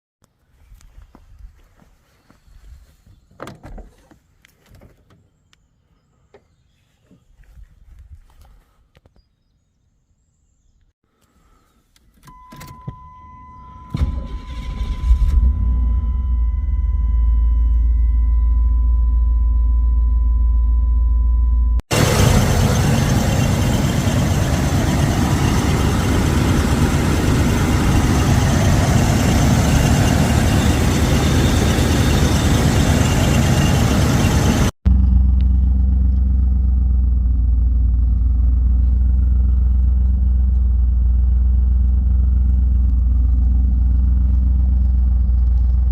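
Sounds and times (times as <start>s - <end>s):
car engine cranking and starting: 12.2s - 19.0s, 21.9s - 45.9s
warning chime tone: 12.3s - 21.8s
car engine idling: 21.9s - 45.9s.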